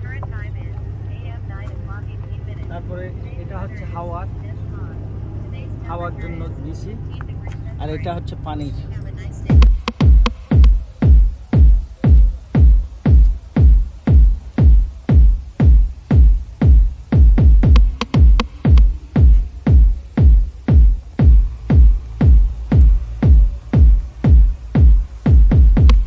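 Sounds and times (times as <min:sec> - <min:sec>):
electronic dance music: 0:09.4 - 0:26.0
heavy kick drum beat: 0:09.5 - 0:26.0.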